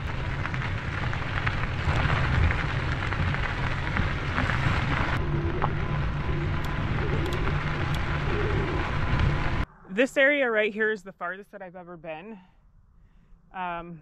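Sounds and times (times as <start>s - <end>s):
bike tyres crunching on gravel: 0.0s - 9.6s.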